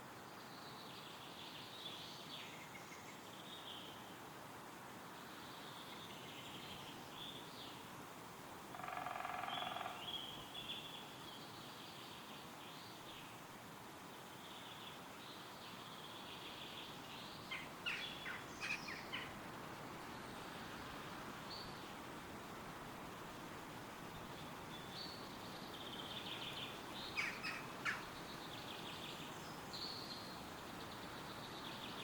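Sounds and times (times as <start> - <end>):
wind rustling through trees: 0.0 - 32.0
songbirds singing: 5.1 - 7.9, 8.7 - 13.4, 14.1 - 22.1, 24.0 - 32.0.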